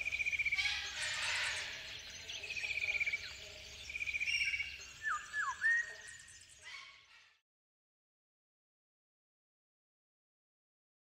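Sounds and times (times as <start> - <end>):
faint outdoor background noise: 0.0 - 7.4.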